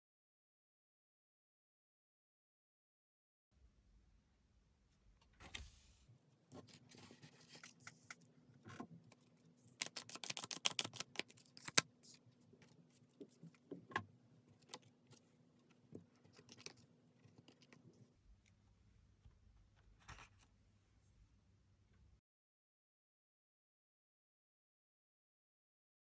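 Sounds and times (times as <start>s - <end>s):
cards shuffling: 9.6s - 12.2s.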